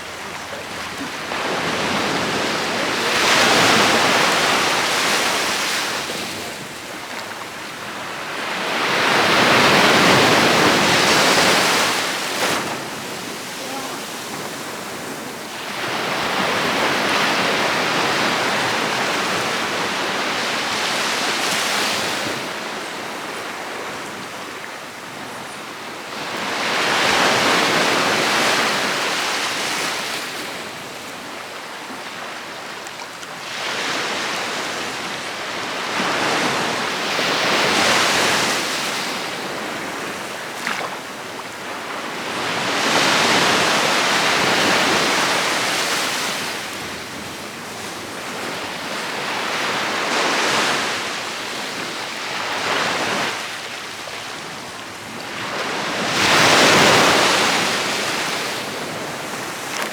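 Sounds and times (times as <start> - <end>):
surf breaking on a beach: 0.0 - 59.9.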